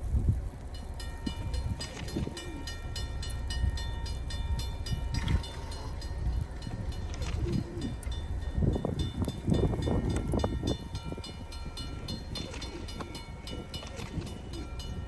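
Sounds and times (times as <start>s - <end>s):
train rumbling past: 0.0s - 15.0s
high-toned bell ringing: 0.8s - 15.0s.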